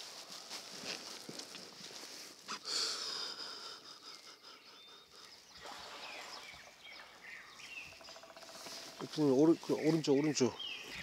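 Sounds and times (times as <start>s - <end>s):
faint bird chirps: 4.0s - 11.0s.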